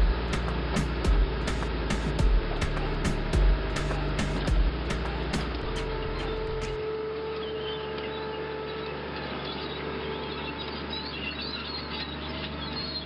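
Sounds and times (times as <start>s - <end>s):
steady low hum: 0.0s - 13.0s
small birds chirping: 7.4s - 13.0s.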